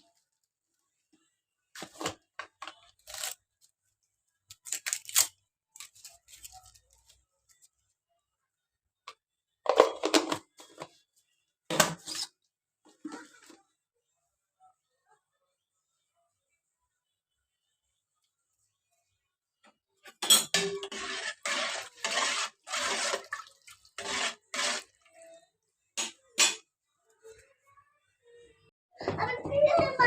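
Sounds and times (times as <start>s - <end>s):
kitchen clattering: 20.1s - 25.0s, 26.0s - 26.7s.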